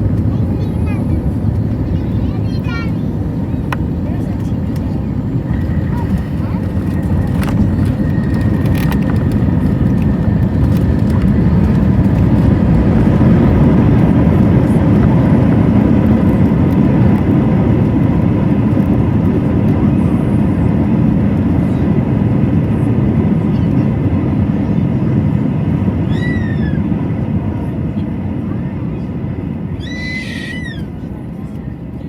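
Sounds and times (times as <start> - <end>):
aircraft cabin rumble: 0.0 - 32.0.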